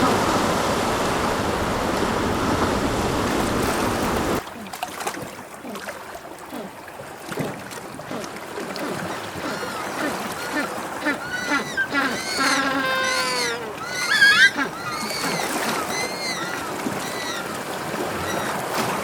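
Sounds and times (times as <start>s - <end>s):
sea surf rushing: 0.0s - 4.4s.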